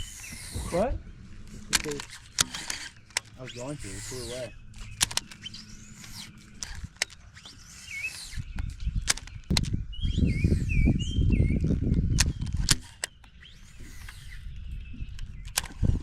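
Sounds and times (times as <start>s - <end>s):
sharp clicks: 0.0s - 11.0s, 11.6s - 16.0s
bird chirping: 0.0s - 16.0s.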